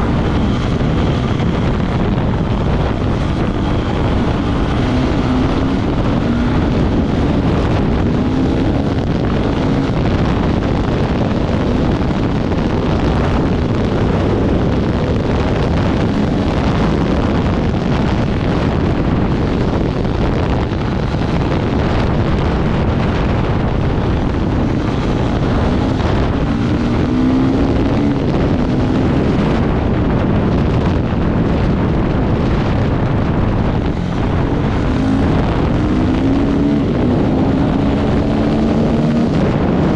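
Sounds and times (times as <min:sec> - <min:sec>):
motorcycle engine revving: 0:00.0 - 0:39.9
wind buffeting microphone: 0:00.0 - 0:39.9.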